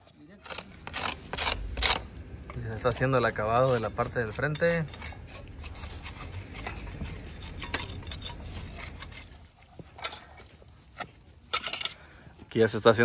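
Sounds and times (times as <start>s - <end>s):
tools scraping wet concrete: 0.0s - 12.1s
low background noise: 0.0s - 13.0s.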